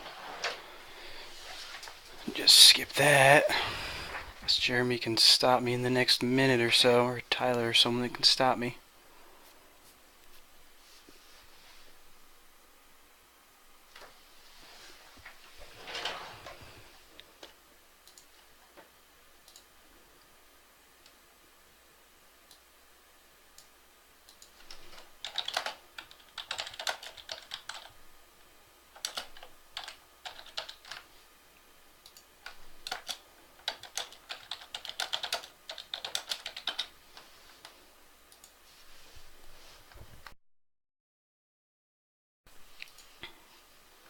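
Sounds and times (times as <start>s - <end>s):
computer keyboard typing: 24.3s - 28.0s, 28.9s - 31.1s, 32.0s - 36.9s.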